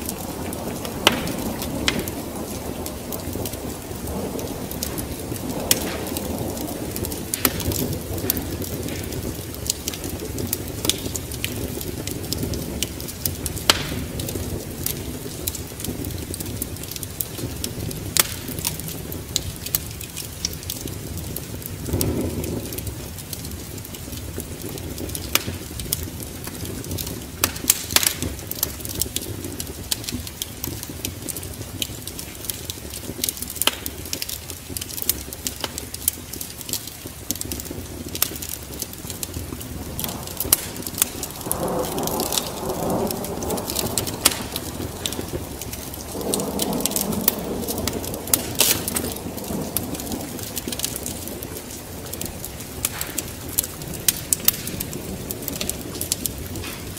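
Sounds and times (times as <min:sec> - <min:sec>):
low thunder rumble: 0:00.0 - 0:56.9
rain: 0:00.0 - 0:56.9
wood fire crackling and popping: 0:00.0 - 0:56.9.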